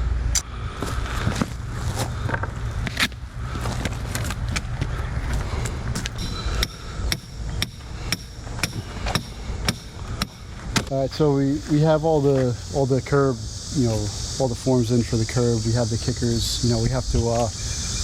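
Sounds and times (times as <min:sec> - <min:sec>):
low steady rumble: 0:00.0 - 0:18.0
hammer striking metal: 0:06.2 - 0:10.9.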